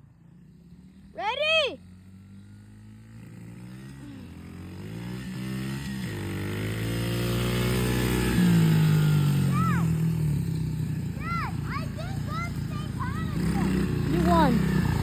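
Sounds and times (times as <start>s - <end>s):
pit bike engines revving: 0.0s - 15.0s.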